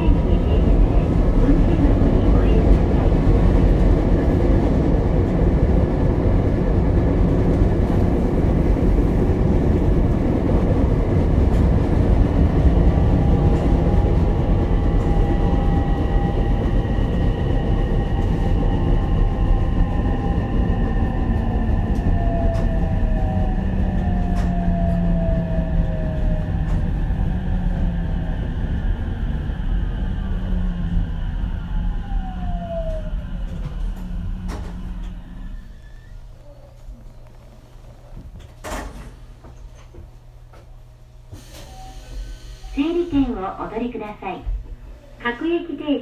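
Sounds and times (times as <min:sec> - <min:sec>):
train rumbling along track: 0:00.0 - 0:46.0
faint whining tones: 0:29.8 - 0:38.6.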